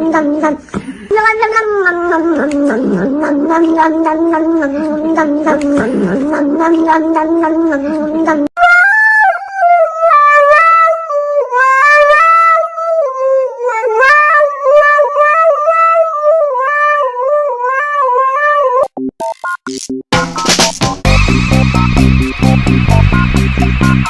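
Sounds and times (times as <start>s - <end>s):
dog howling: 9.2s - 18.8s.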